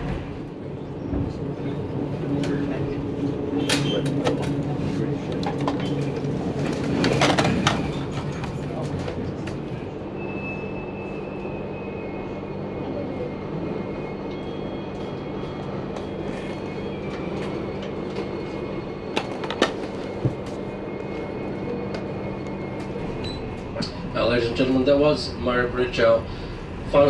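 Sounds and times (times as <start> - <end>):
train carriage rumble: 0.0 - 27.0.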